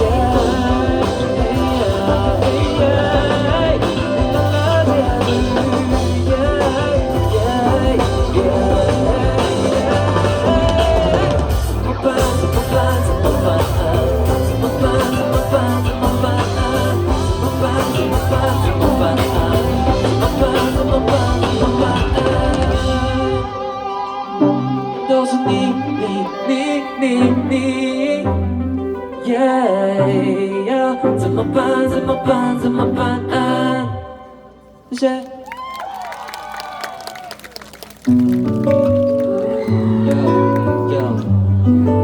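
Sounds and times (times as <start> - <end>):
drums: 0.0 - 26.1, 35.6 - 42.0
bass: 0.0 - 26.2, 27.0 - 35.0, 36.1 - 42.0
wavering melodic lead: 0.0 - 34.8
live pop-rock band music: 0.0 - 35.2, 36.4 - 42.0.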